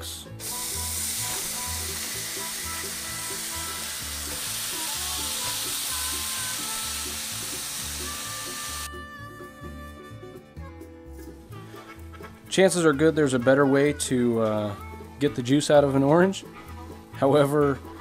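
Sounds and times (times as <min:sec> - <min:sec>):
chicken sizzling in a skillet: 0:00.4 - 0:08.9.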